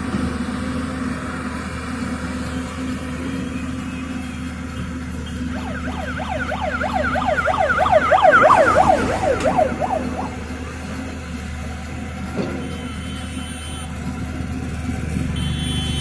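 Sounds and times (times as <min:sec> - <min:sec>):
diesel engine humming: 0:05.4 - 0:11.1
siren wailing: 0:05.5 - 0:11.2.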